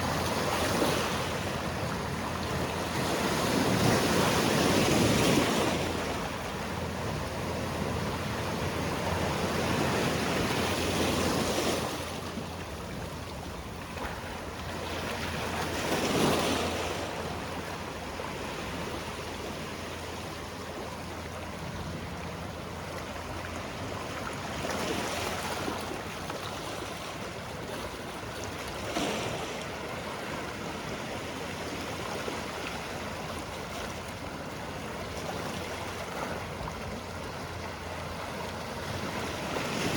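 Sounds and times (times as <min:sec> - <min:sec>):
surf on rocky shore: 0:00.0 - 0:39.9.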